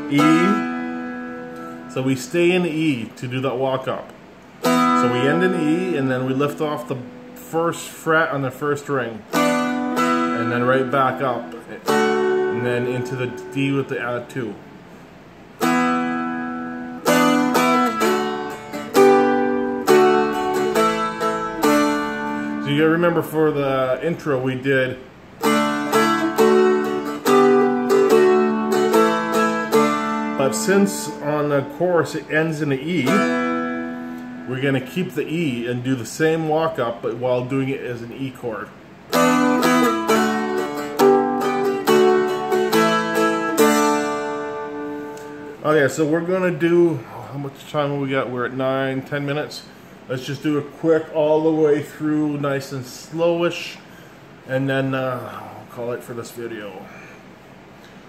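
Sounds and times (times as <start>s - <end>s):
stringed instrument strummed in chords: 0.0s - 3.1s, 4.6s - 14.8s, 15.6s - 35.8s, 39.0s - 45.9s.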